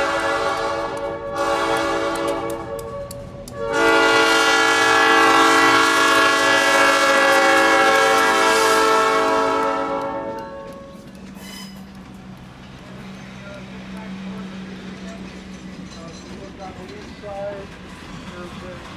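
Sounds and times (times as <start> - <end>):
locomotive air horn blasts: 0.0 - 11.0.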